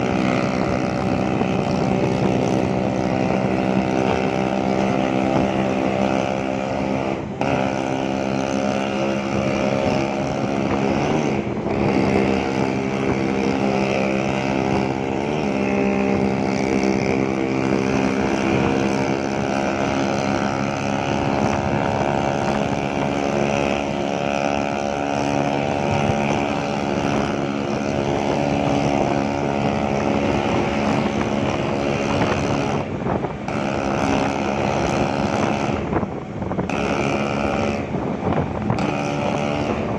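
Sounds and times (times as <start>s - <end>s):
scooter two-stroke engine running: 0.0s - 39.9s.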